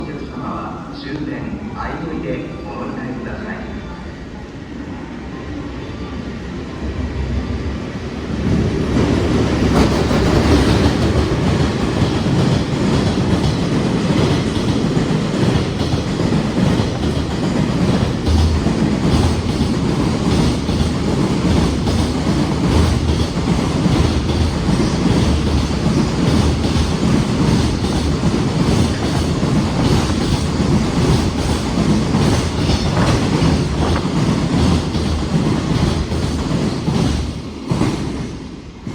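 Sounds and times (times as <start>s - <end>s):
freight train passing: 0.0s - 38.9s
wheels clattering over rail joints: 9.6s - 37.4s.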